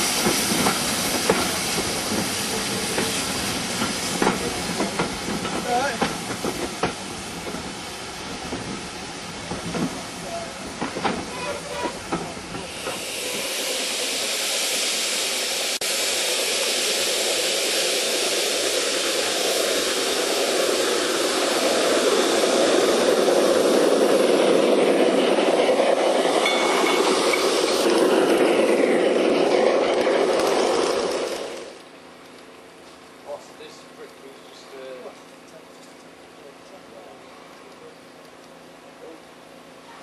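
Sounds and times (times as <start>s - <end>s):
model train rushing hiss: 0.0s - 31.8s
train wheels knocking over rail joints: 0.2s - 7.7s, 10.7s - 13.0s.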